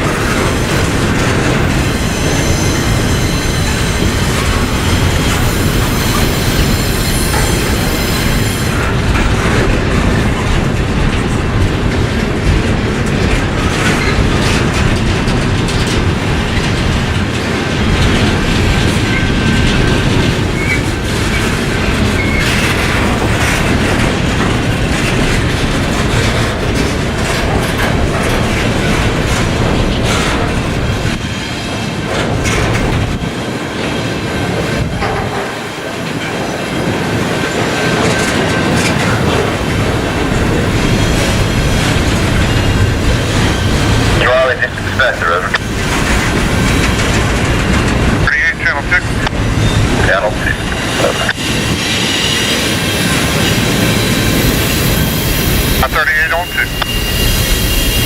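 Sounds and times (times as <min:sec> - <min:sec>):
freight train rolling past: 0:00.0 - 0:58.0
high-pitched wheel squeal: 0:56.4 - 0:58.0.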